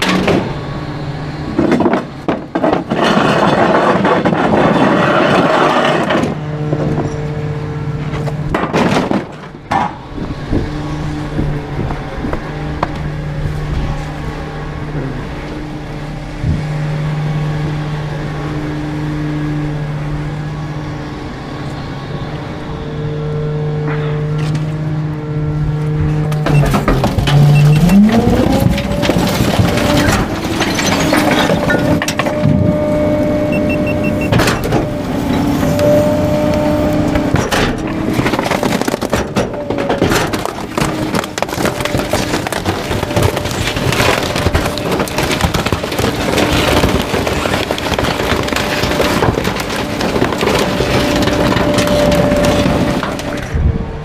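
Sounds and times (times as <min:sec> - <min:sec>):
hydraulic packer crushing: 0:00.0 - 0:16.8, 0:23.8 - 0:53.8
garbage truck engine revving: 0:00.0 - 0:54.0
wood cracking and splintering: 0:01.6 - 0:07.1, 0:08.0 - 0:10.0, 0:26.3 - 0:32.9, 0:33.6 - 0:53.7.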